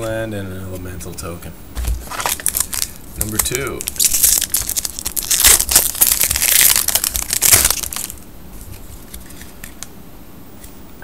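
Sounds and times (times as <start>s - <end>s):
foil wrapper crinkling: 2.0s - 9.8s.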